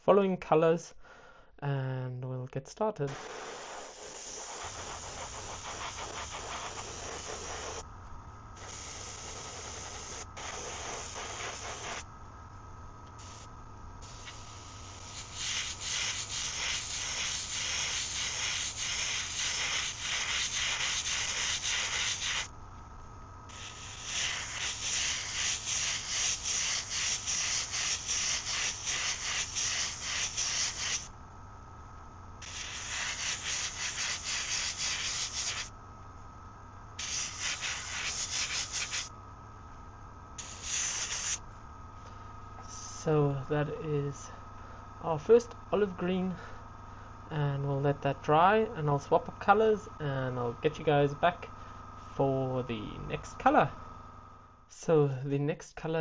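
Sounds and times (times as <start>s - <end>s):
steady low hum: 0.0s - 56.0s
airbrush spraying hiss: 3.1s - 7.9s, 8.6s - 12.1s, 13.1s - 22.6s, 23.5s - 31.1s, 32.4s - 35.8s, 37.0s - 39.1s, 40.4s - 41.4s.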